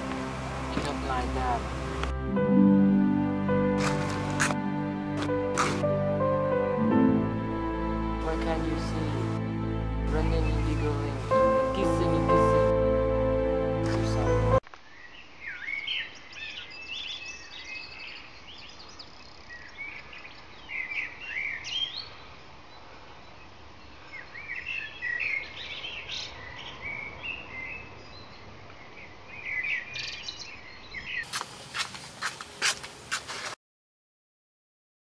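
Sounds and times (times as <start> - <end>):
steady outdoor hiss: 0.0 - 33.6
small birds chirping: 13.9 - 33.2.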